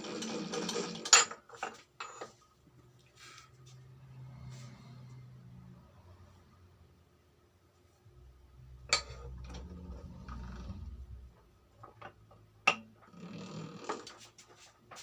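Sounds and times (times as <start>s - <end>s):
metal tools clinking on workbench: 1.0s - 2.4s.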